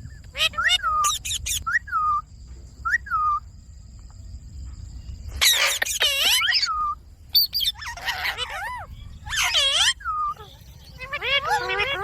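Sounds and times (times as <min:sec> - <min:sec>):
parrot calling: 0:00.3 - 0:02.2, 0:05.4 - 0:12.0.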